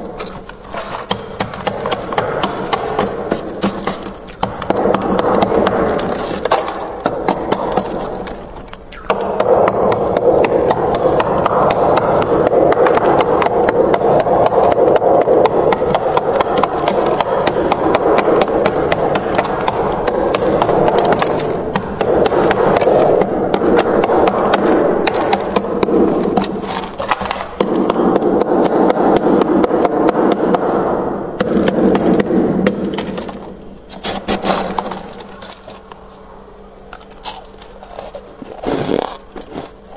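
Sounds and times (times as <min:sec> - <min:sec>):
frost being scraped: 0:37.1 - 0:39.9.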